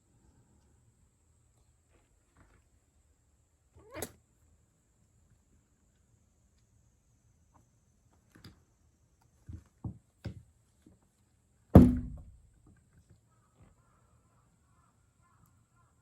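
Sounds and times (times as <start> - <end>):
loud thump: 11.8 - 12.4
soft knocks: 11.8 - 12.4.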